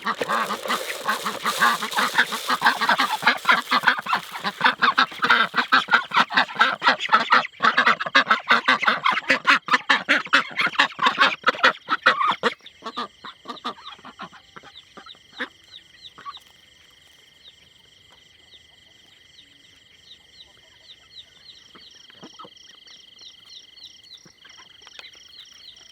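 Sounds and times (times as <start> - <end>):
farm fowl calling: 0.0 - 9.1.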